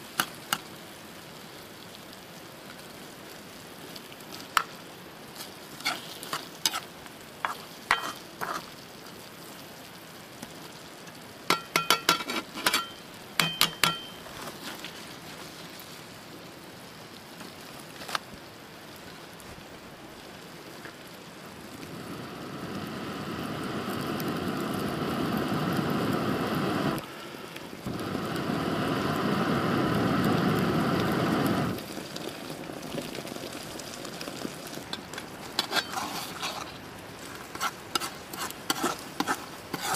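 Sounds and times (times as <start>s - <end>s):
food sizzling in a wok: 0.0s - 39.9s
utensil clinking on metal pan: 7.9s - 8.2s, 11.5s - 14.2s.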